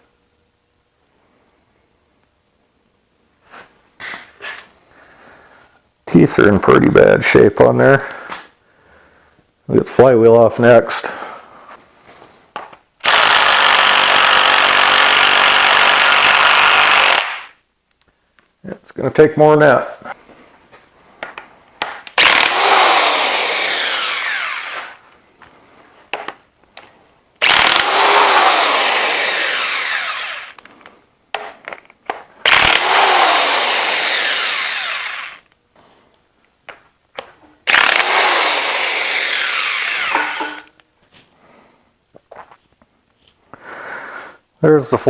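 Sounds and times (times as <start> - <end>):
impact wrench bursts: 13.0 - 17.6, 22.0 - 25.0, 27.4 - 30.6, 32.4 - 35.5, 37.6 - 40.8.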